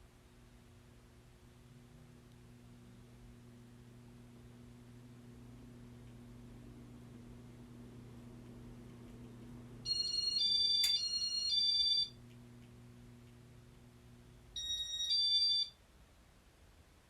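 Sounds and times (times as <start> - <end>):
low electrical hum: 0.0 - 17.0
click: 8.4 - 9.4, 12.2 - 13.8.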